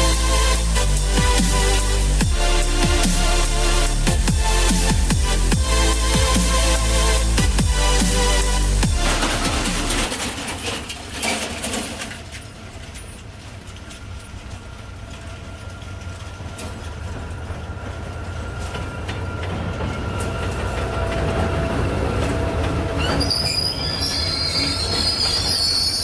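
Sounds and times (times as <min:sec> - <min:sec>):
train rumbling on rails: 0:00.0 - 0:26.0
wheel squeal: 0:09.0 - 0:26.0.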